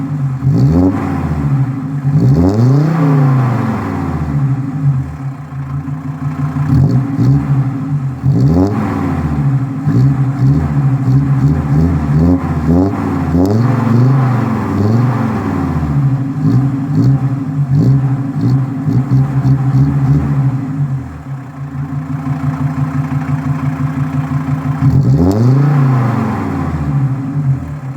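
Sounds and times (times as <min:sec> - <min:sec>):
diesel engine open exhaust revving: 0:00.0 - 0:27.9.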